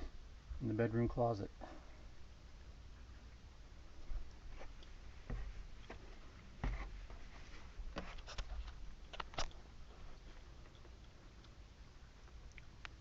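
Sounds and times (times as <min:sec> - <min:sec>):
dull low thump: 0:05.2 - 0:06.0
clicks and knocks of handling things: 0:08.0 - 0:09.6.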